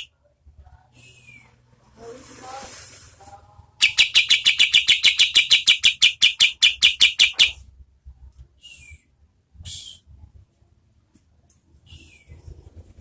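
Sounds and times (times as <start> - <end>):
songbird rapid chirps: 3.8 - 7.6.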